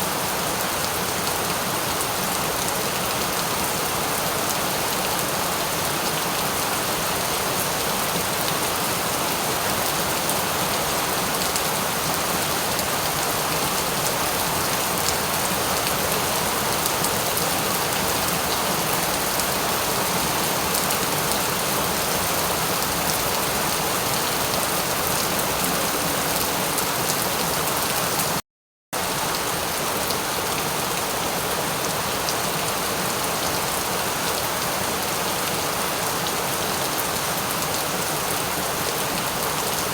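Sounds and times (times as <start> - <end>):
steady rain falling: 0.0 - 28.4, 29.0 - 39.9.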